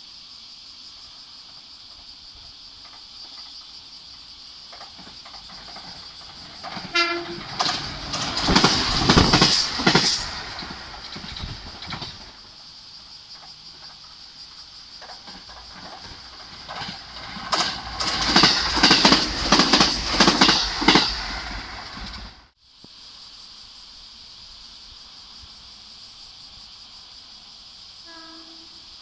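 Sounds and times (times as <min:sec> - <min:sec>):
train wheels clacking over rail joints: 0:01.4 - 0:12.5, 0:13.3 - 0:22.5
train horn blast: 0:06.8 - 0:07.8, 0:28.1 - 0:28.8.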